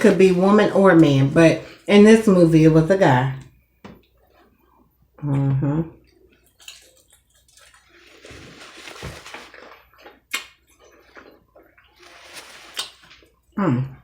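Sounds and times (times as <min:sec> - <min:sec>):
wet chewing: 0:06.0 - 0:13.5.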